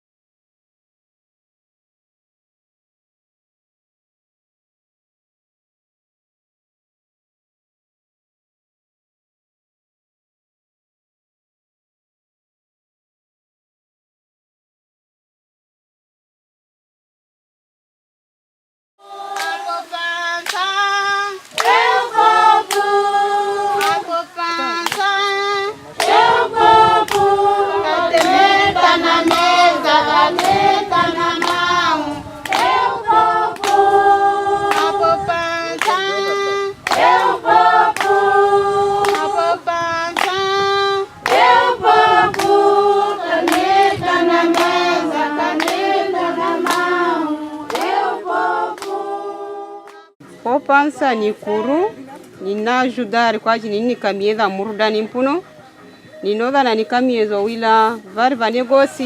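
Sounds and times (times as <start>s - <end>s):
group singing in chorus: 19.0s - 50.2s
hand clapping: 19.3s - 19.8s, 20.4s - 20.9s, 21.5s - 23.0s, 23.8s - 25.4s, 26.0s - 27.3s, 28.1s - 33.9s, 34.6s - 38.2s, 39.0s - 42.6s, 43.4s - 49.0s.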